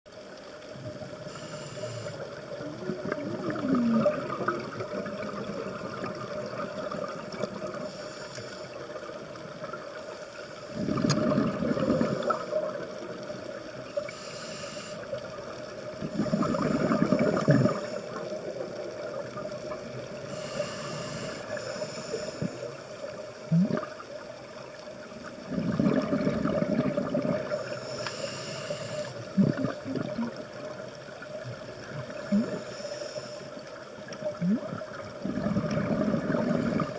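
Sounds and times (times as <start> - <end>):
steady hiss and hum: 0.1 - 36.9
exhaled bubbles gurgling: 0.4 - 10.0, 10.7 - 14.4, 15.0 - 36.9
diver breathing through regulator: 1.2 - 2.4, 7.8 - 8.8, 14.0 - 15.2, 20.2 - 23.5, 27.4 - 29.8, 32.2 - 33.6.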